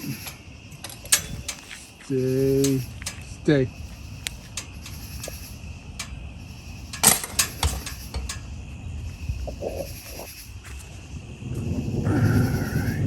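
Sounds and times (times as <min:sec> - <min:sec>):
light metallic clicks: 0:00.0 - 0:08.8
steady high hiss: 0:00.0 - 0:10.6.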